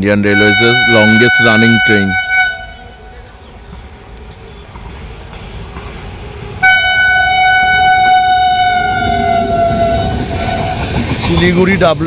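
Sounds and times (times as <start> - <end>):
train rumble: 0.1 - 12.0
locomotive air horn: 0.3 - 3.0, 6.6 - 10.8.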